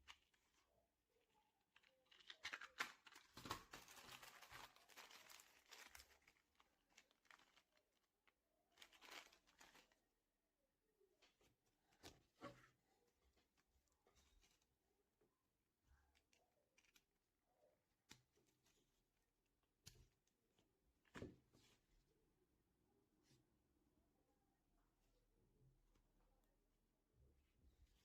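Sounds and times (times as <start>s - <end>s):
material crinkling and rustling: 1.6s - 10.3s.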